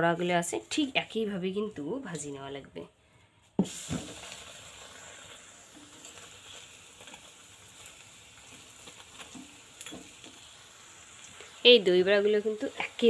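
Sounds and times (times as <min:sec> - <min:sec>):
batter splashing into oil: 0:03.6 - 0:12.0
batter sizzling in hot oil: 0:03.6 - 0:13.0.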